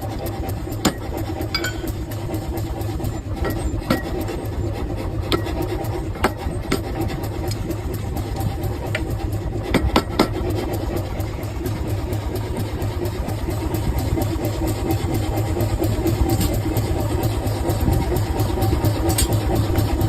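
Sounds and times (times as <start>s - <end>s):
workshop machine drone: 0.0s - 20.0s
metal on metal knocks: 1.5s - 2.0s.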